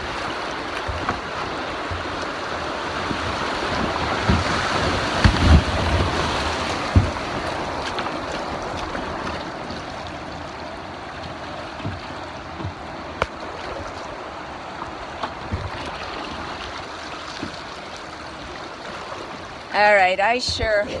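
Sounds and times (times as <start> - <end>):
river rapids rushing: 19.5 - 21.0
low thumps: 20.0 - 21.0.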